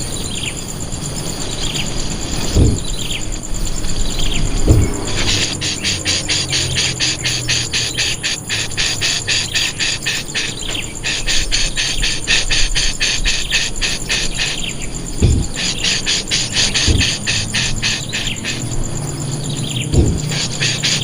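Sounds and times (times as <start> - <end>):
young birds calling shrilly: 1.4 - 21.0
low thump: 2.4 - 3.2, 4.1 - 5.5, 15.1 - 15.8, 16.7 - 17.5, 19.9 - 20.5.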